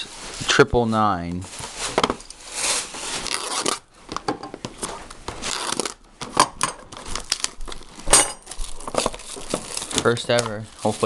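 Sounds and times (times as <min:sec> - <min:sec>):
plastic wrap crinkling and tearing: 0:01.4 - 0:03.9, 0:04.7 - 0:06.1, 0:06.9 - 0:11.0.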